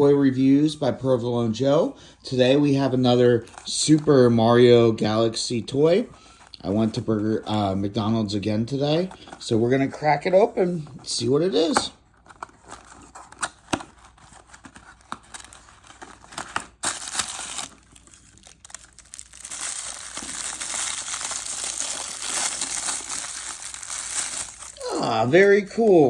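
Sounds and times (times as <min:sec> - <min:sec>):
plastic packaging crinkling: 0:12.3 - 0:25.2.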